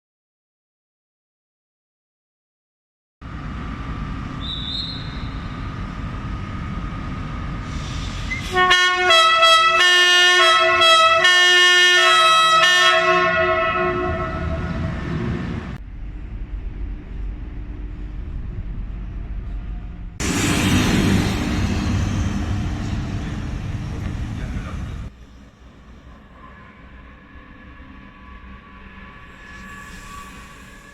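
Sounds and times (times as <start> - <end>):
train running rumble: 3.2 - 30.9
train horn: 8.3 - 15.4.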